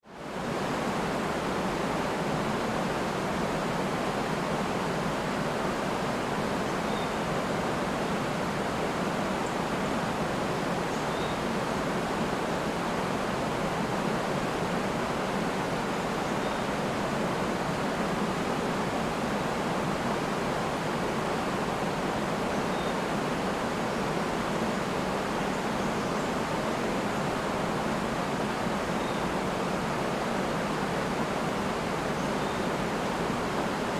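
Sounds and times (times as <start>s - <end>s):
river and waterfall rushing: 0.1s - 33.9s
faint bird chirps: 6.7s - 7.2s, 10.9s - 11.5s, 22.6s - 23.0s, 28.9s - 29.4s, 32.2s - 32.7s.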